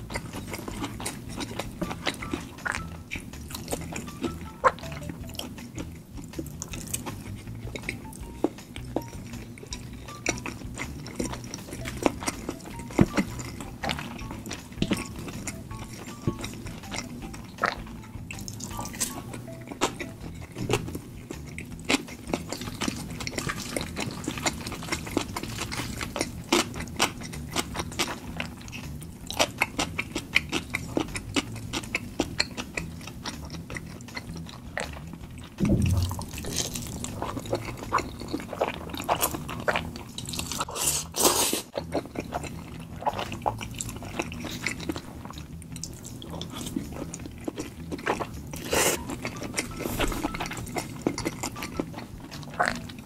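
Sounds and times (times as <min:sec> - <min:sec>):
wet chewing and mouth sounds: 0:00.0 - 0:53.0
deep thump: 0:35.6 - 0:36.7.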